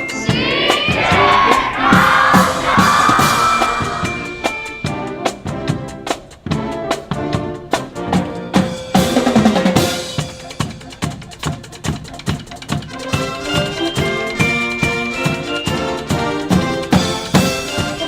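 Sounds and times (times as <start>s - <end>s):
wind and brass chords: 0.2s - 8.5s.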